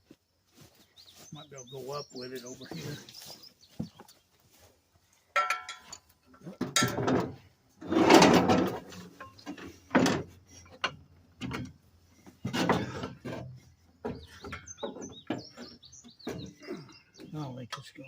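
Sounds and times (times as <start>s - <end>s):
small birds chirping: 0.2s - 6.6s, 9.0s - 18.0s
tools scraping and knocking on metal: 5.3s - 17.3s.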